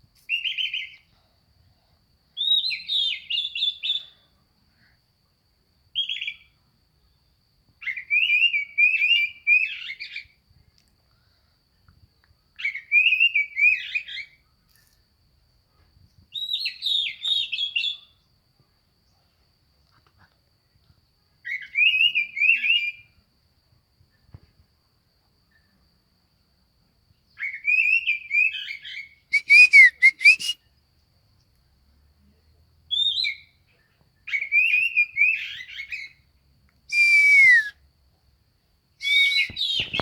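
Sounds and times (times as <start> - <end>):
bird singing whistled phrases: 0.3 - 1.0, 2.4 - 4.1, 6.0 - 6.5, 7.8 - 10.2, 12.6 - 14.4, 16.3 - 18.1, 21.4 - 23.1, 27.4 - 30.6, 32.9 - 33.6, 34.3 - 36.2, 36.9 - 37.8, 39.0 - 40.0.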